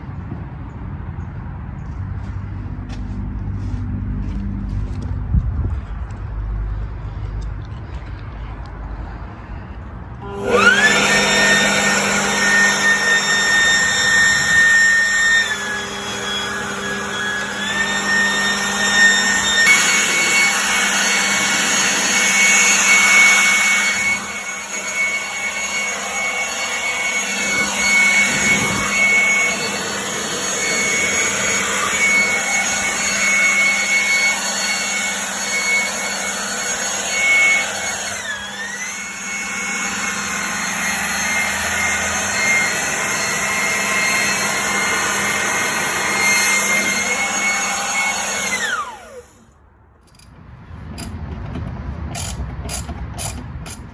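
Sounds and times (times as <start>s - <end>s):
power tool whining: 10.1s - 50.3s, 52.2s - 53.9s.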